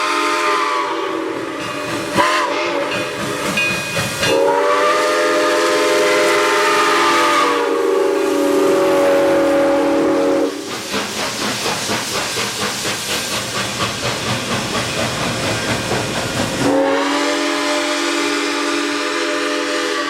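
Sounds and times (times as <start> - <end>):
steam whistle blowing a chord: 0.0 - 3.0, 4.3 - 10.7, 16.6 - 20.0
steam locomotive exhaust chuffing: 0.0 - 20.0.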